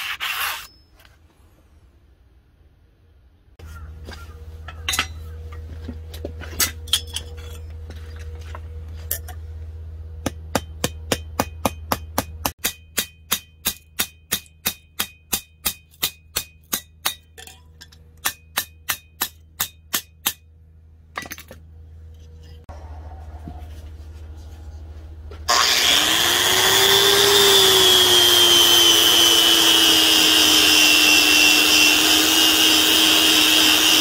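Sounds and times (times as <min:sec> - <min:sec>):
hammer striking metal: 0:10.2 - 0:20.5.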